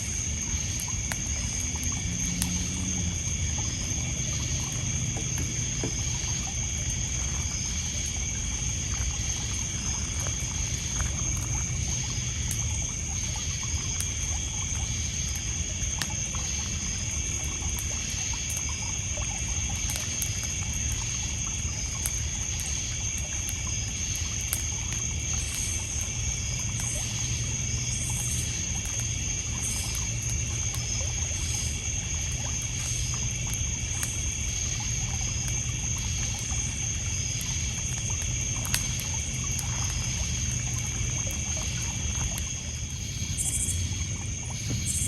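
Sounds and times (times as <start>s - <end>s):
campfire crackling: 0.0s - 45.0s
crickets and night insects: 0.0s - 45.0s.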